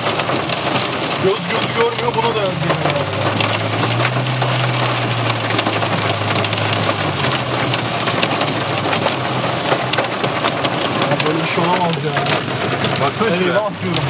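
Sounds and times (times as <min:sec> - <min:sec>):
heavy rain on car roof: 0:00.0 - 0:14.0.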